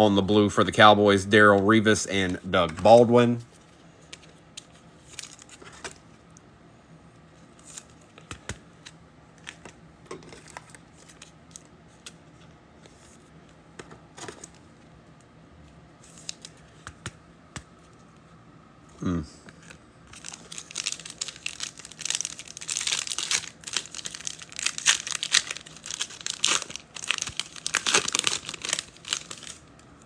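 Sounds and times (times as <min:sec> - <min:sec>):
wrappers rustling: 0:20.1 - 0:29.6.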